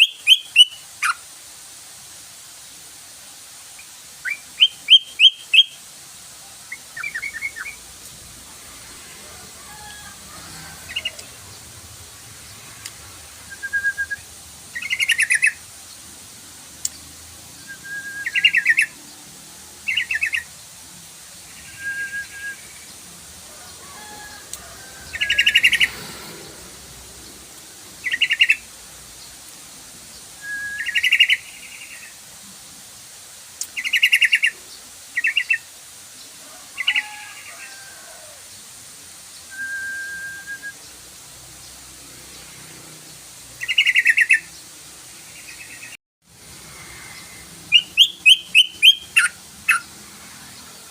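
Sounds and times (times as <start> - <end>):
bird chattering song: 0.0 - 1.2, 4.2 - 5.8, 6.7 - 7.8, 13.6 - 15.6, 17.7 - 19.0, 25.1 - 26.0, 28.0 - 28.7, 30.8 - 32.1, 43.6 - 44.5, 47.7 - 49.9.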